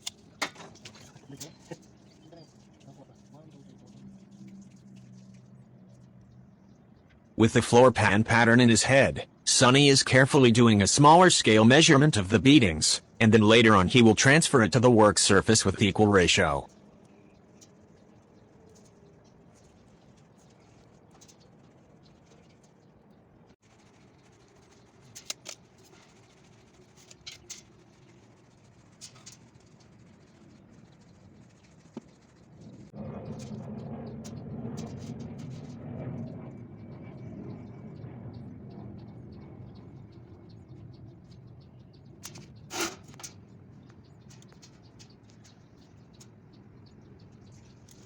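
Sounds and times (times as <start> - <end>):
small clicks and scratches: 16.7 - 35.9, 41.3 - 48.0.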